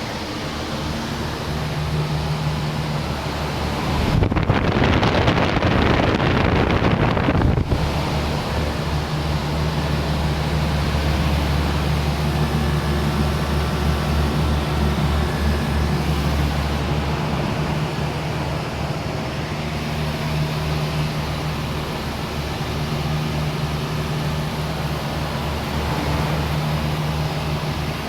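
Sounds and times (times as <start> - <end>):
fan rush: 0.0 - 28.0
low compressor hum: 0.0 - 28.0.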